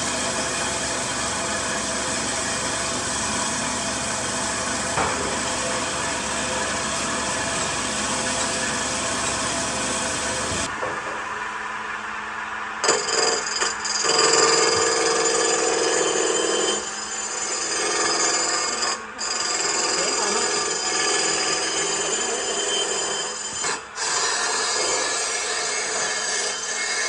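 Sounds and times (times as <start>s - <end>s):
power tool on wood: 12.8s - 27.0s.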